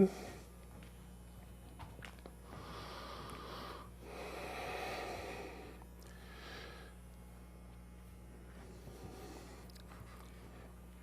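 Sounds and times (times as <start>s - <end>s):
faint low hum: 0.0s - 11.0s
person breathing: 2.4s - 7.1s, 8.8s - 10.7s.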